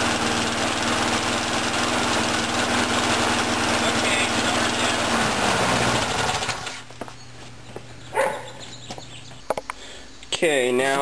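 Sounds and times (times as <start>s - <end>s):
lawn mower engine running: 0.0s - 7.1s.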